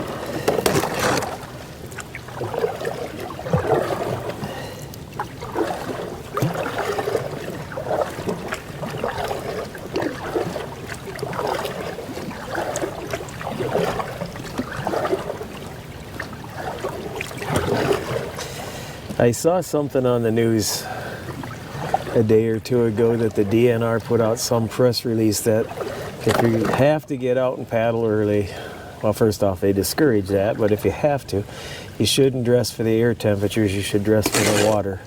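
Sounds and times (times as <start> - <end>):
ice clicking and scraping hull: 0.0 - 15.3, 33.8 - 35.0
paddle strokes in water: 0.0 - 35.0.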